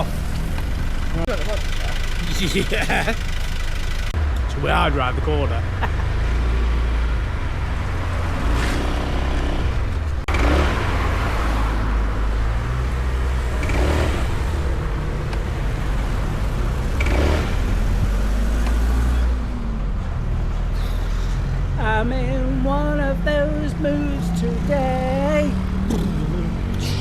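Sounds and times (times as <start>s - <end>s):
deep constant rumble: 0.0s - 6.0s
vehicle engine and road noise: 0.0s - 27.0s.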